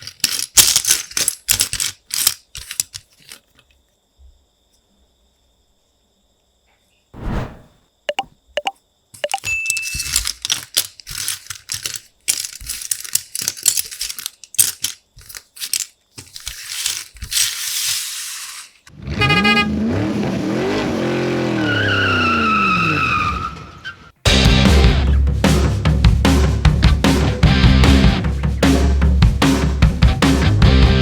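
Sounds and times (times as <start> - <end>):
high tyre squeal: 19.0 - 24.2.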